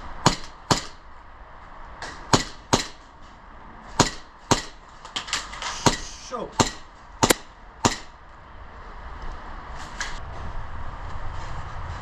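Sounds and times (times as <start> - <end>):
airsoft gun shots: 5.7 - 8.2.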